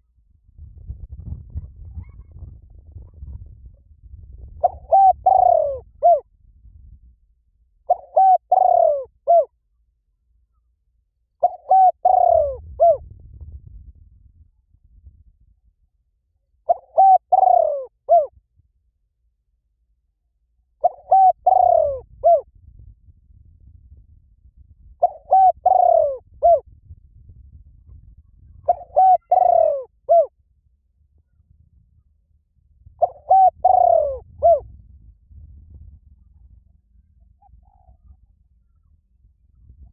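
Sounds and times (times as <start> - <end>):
bird hooting calls: 4.6 - 6.2, 7.9 - 9.5, 11.4 - 13.0, 16.7 - 18.3, 20.8 - 22.5, 25.0 - 26.6, 28.6 - 30.3, 33.0 - 34.6, 37.2 - 38.9
dove cooing: 4.6 - 6.2, 7.9 - 9.5, 11.4 - 13.0, 16.7 - 18.3, 20.8 - 22.5, 25.0 - 26.6, 28.6 - 30.3, 33.0 - 34.6, 37.3 - 38.9.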